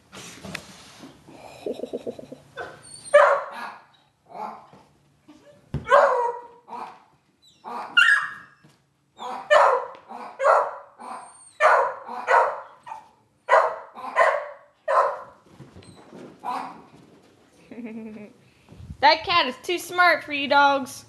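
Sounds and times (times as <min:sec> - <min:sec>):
dog barking: 0:03.1 - 0:03.8, 0:05.8 - 0:06.9, 0:07.8 - 0:08.4, 0:09.2 - 0:15.4.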